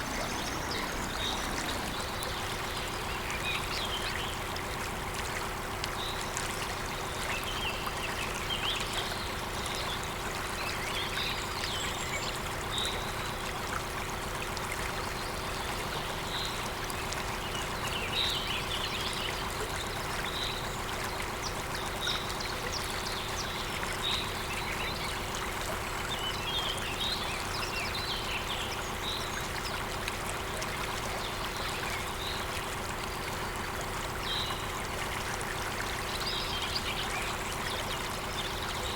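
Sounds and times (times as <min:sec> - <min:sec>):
waterfall rushing: 0:00.0 - 0:02.8.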